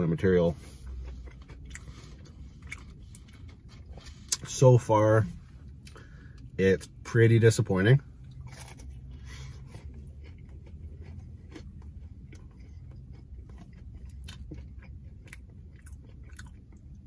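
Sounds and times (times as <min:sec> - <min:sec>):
chewing crispy food: 0:00.0 - 0:04.6, 0:08.0 - 0:17.0
low steady hum: 0:00.0 - 0:17.0.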